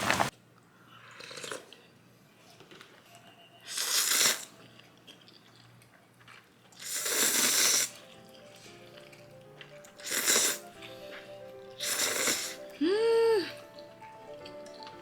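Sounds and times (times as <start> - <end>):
close-up eating sounds: 0.0 - 15.0
soft plucked background music: 7.9 - 15.0.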